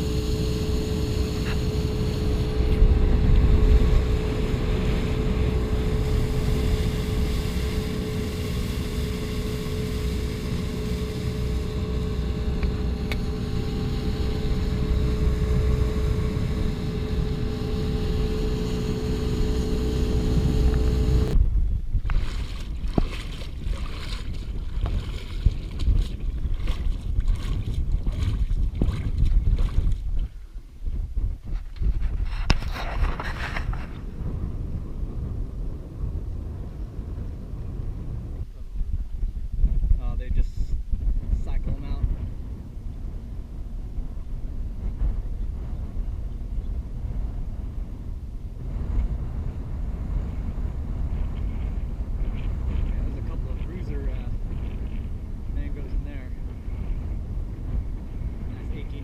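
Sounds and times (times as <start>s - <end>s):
boat motor running: 0.0s - 21.4s
water rumble: 0.0s - 31.4s, 41.0s - 59.0s
wind on microphone: 0.0s - 59.0s.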